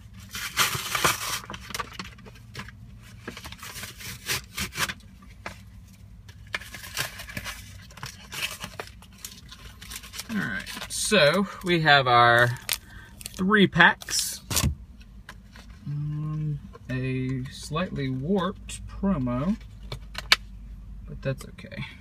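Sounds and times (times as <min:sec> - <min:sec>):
plastic packaging crinkling and tearing: 0:00.1 - 0:02.4, 0:03.1 - 0:05.0, 0:06.4 - 0:14.7.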